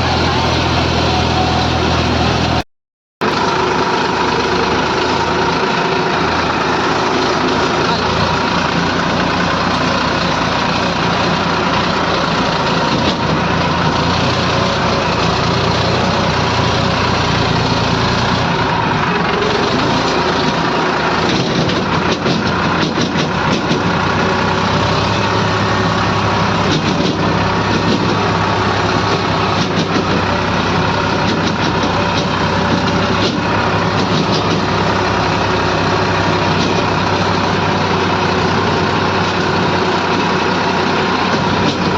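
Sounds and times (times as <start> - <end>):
large engine idling: 0.0 - 2.6, 3.2 - 41.9
knocks and clatters: 20.0 - 24.1, 26.5 - 35.0.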